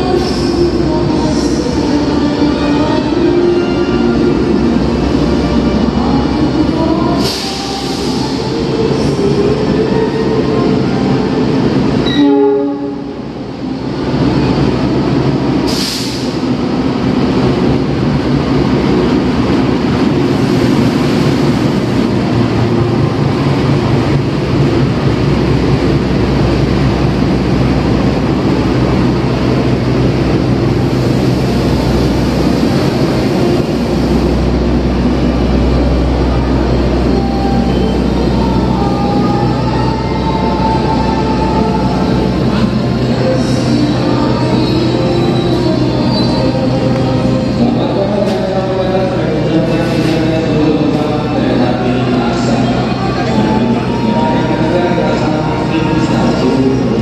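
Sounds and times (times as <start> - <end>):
locomotive engine rumbling: 0.0 - 57.0
train horn: 12.0 - 13.2.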